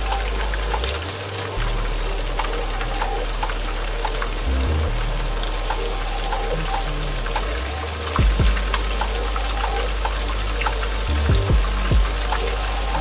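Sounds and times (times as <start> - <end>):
background music with bass: 0.0 - 13.0.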